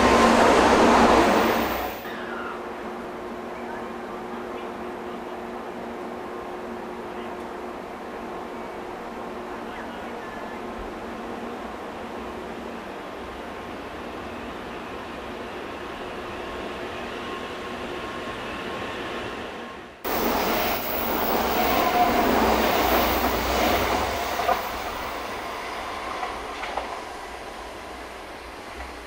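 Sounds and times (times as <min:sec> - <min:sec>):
high-speed train rushing past: 0:00.0 - 0:29.0.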